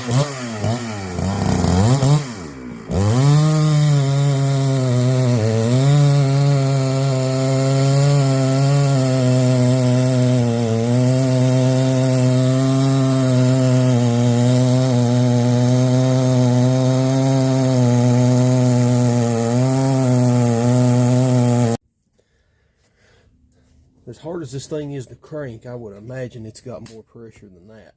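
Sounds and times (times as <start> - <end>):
chainsaw engine spinning: 0.0 - 21.8.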